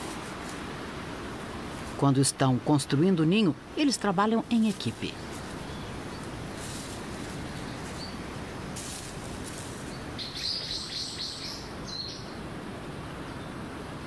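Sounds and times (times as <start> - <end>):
steady outdoor hiss: 0.0 - 14.0
small songbirds chirping: 1.3 - 12.5.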